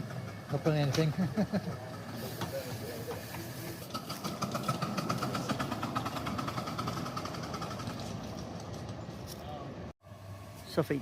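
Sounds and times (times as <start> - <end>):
model train running on track: 0.0 - 8.5.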